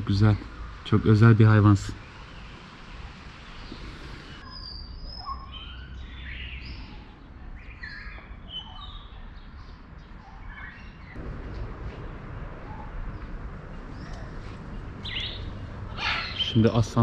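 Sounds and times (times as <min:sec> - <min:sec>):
small birds chirping: 0:00.0 - 0:17.0
faint low rumble: 0:11.2 - 0:17.0.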